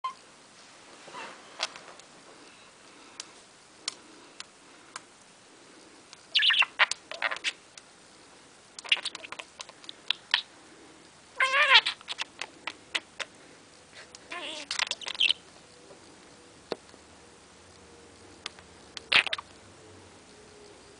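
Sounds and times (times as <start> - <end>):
budgerigar chirping and chattering: 6.3 - 7.6, 11.4 - 12.3, 14.3 - 15.4, 19.1 - 19.4.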